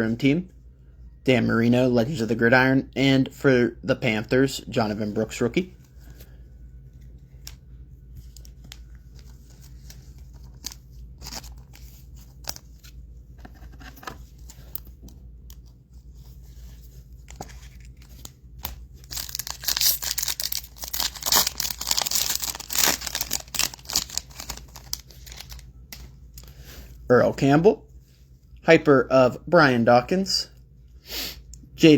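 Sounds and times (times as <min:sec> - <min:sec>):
foil pack tearing and crinkling: 0:19.0 - 0:25.6.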